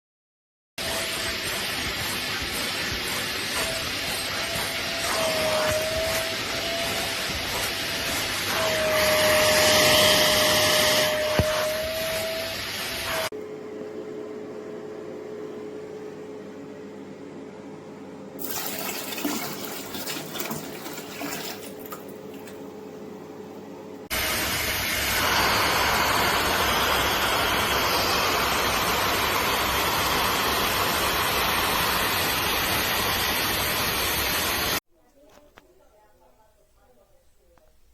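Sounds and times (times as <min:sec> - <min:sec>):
wet vacuum suction rushing: 0:00.8 - 0:13.3, 0:24.1 - 0:34.8.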